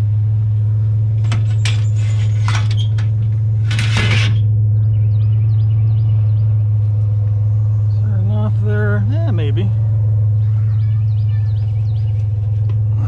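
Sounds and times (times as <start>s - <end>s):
truck engine idling: 0.0s - 13.0s
junk scraping into truck: 1.2s - 4.5s
metal clanks and knocks: 1.2s - 4.5s.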